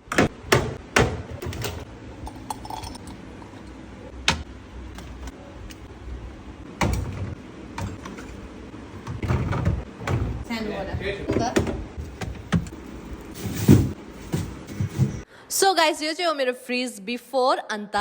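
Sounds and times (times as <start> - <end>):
items clinking in a fridge: 0.1 - 3.3, 6.8 - 15.3
shelves and containers knocking: 9.0 - 15.2.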